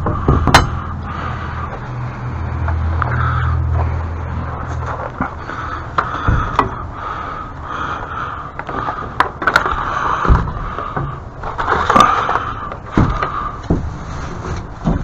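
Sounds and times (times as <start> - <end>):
scraping: 0.0 - 15.0
sharp knocks and clicks: 6.0 - 6.9.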